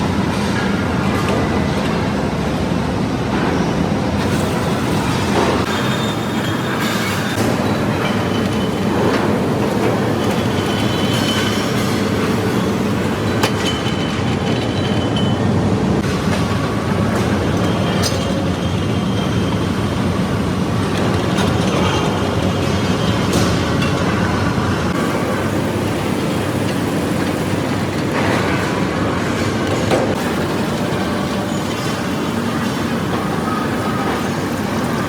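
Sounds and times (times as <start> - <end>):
steel mill machinery rumbling: 0.0 - 35.0.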